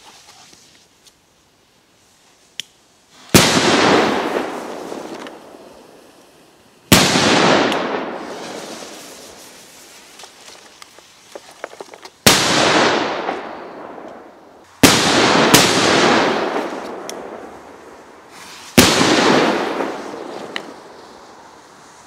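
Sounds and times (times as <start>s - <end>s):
faint crackles: 0.0s - 1.4s, 4.0s - 6.9s, 7.5s - 12.2s, 16.4s - 22.0s
firecrackers exploding: 3.1s - 22.0s.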